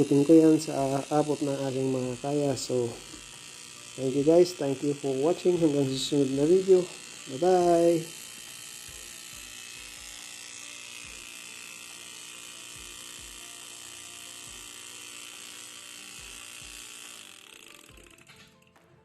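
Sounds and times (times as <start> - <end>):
refrigerator compressor humming: 0.0 - 18.4.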